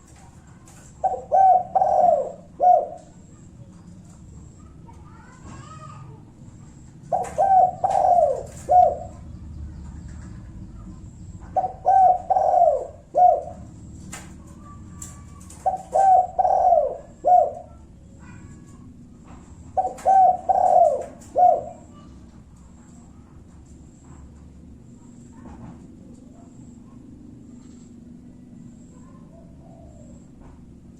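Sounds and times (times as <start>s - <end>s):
dove cooing: 0.0s - 30.9s.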